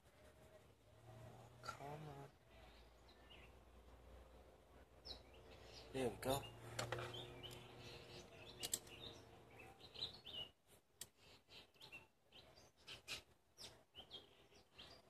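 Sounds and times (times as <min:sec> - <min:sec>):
small clicks: 0:08.6 - 0:09.0
faint bird chirps: 0:11.2 - 0:15.0.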